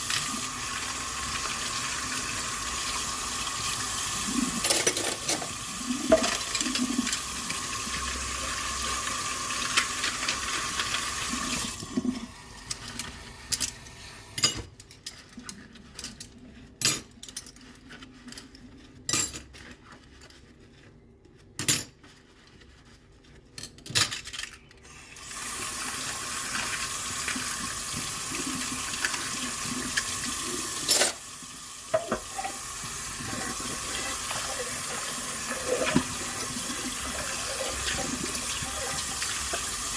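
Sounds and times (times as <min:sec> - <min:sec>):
dishes clinking and knocking: 0:04.6 - 0:07.2, 0:31.9 - 0:32.6
tap running into sink: 0:31.9 - 0:39.9.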